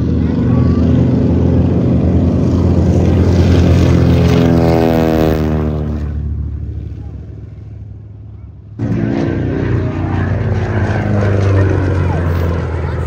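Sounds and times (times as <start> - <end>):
propeller aircraft flying past: 0.0 - 13.0.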